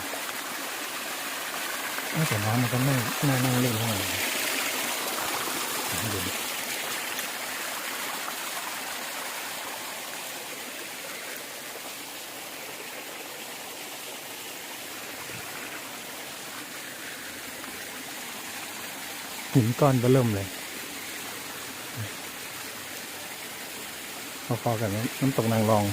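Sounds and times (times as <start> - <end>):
water rushing over rocks: 0.0 - 25.9.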